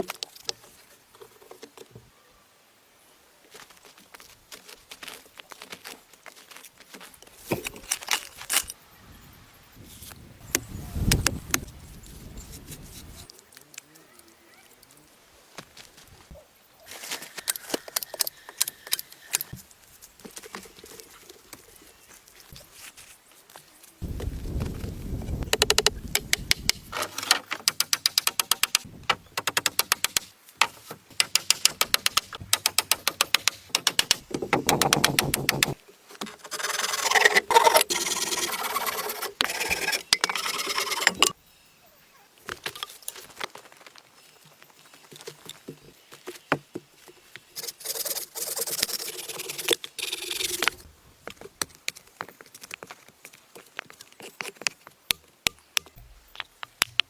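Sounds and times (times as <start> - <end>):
sharp clicks and knocks: 25.4 - 36.4.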